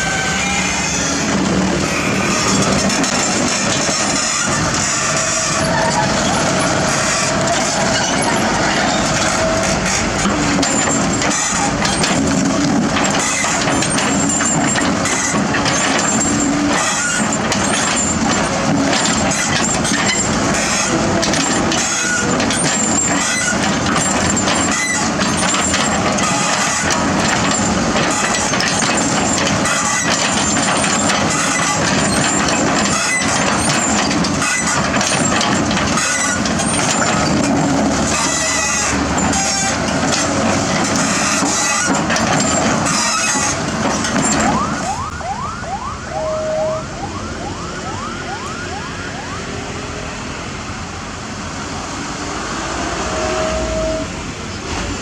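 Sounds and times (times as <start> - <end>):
diesel construction machinery running: 0.0 - 55.0
knocks and clanks: 1.2 - 45.1.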